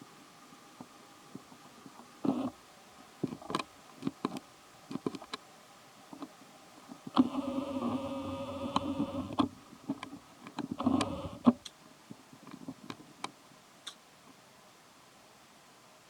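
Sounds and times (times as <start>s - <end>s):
small clicks: 7.1s - 11.8s.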